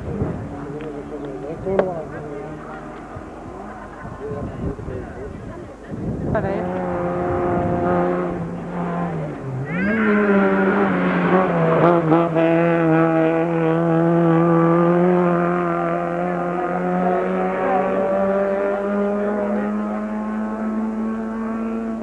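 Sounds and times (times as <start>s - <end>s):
race car engine at high revs: 0.0s - 22.0s.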